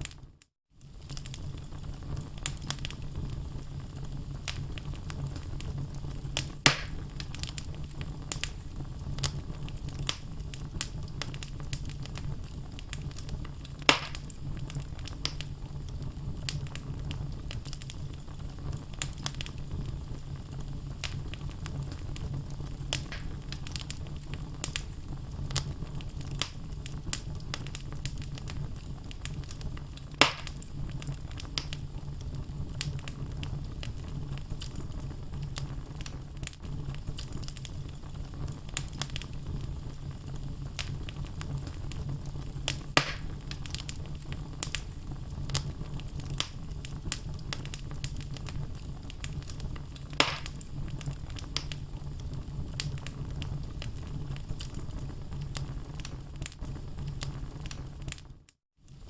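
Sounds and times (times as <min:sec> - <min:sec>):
wood crackling: 0:00.8 - 0:58.3
fire flames rumbling: 0:00.8 - 0:59.0
loud wood pops: 0:06.7 - 0:07.0, 0:13.9 - 0:14.3, 0:23.0 - 0:23.4, 0:30.2 - 0:30.6, 0:43.0 - 0:43.4, 0:50.2 - 0:50.6.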